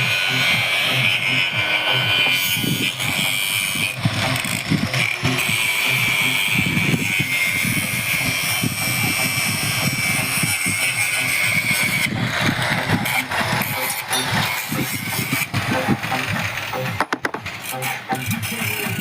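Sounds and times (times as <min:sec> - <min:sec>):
machine engine running: 0:00.0 - 0:07.4, 0:11.2 - 0:18.4.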